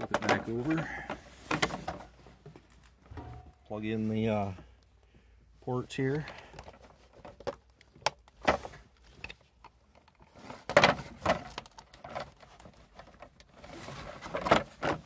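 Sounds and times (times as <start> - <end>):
plastic console knocking and rattling: 10.4 - 15.0.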